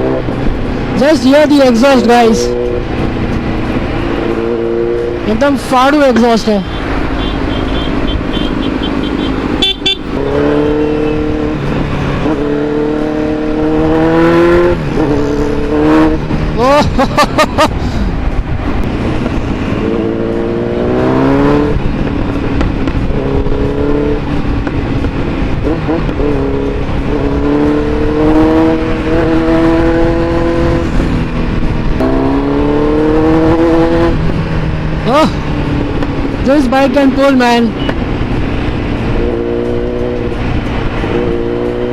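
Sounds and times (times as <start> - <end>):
motorcycle engine accelerating: 0.0 - 41.9
wind rumble on microphone: 17.8 - 36.5.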